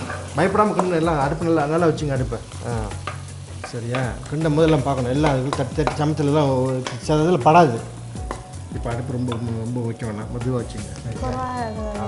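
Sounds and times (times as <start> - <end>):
wooden spatula stirring in wok: 0.0 - 8.5
chicken sizzling in a wok: 0.0 - 11.2.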